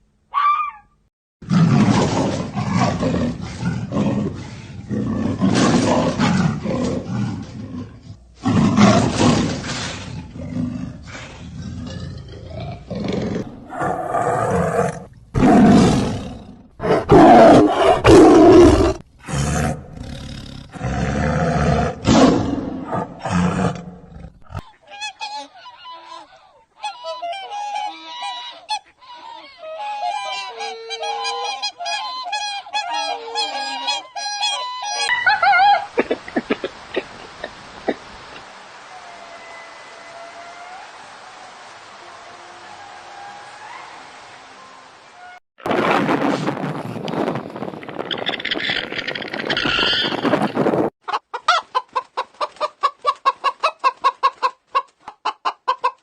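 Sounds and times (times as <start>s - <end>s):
large animal roaring: 1.4s - 24.6s
geese honking: 24.8s - 35.8s.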